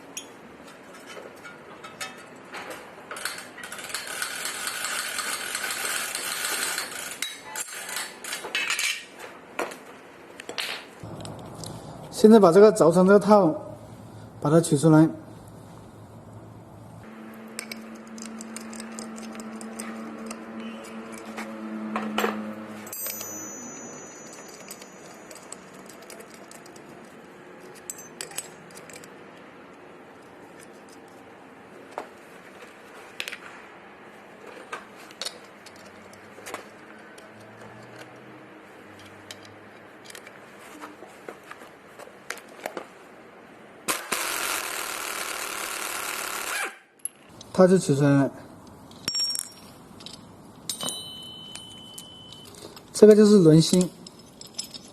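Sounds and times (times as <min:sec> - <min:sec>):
steady hum: 0:11.0 - 0:25.0
metal tools clinking on wheel hub: 0:22.2 - 0:29.1, 0:48.8 - 0:54.9.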